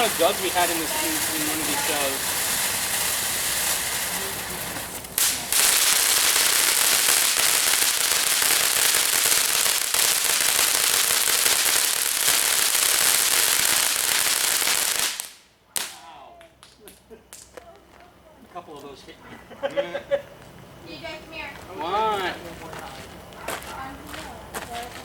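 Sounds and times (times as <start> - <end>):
firework hissing crackle: 0.0 - 17.6.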